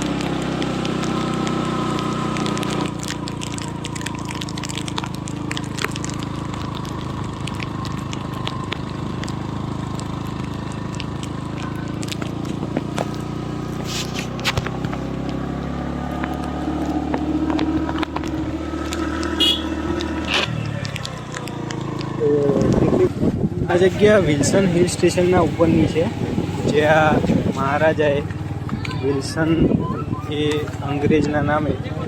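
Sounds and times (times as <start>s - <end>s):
crackling clicks: 0.0s - 22.8s
vehicle engine running: 0.0s - 32.0s.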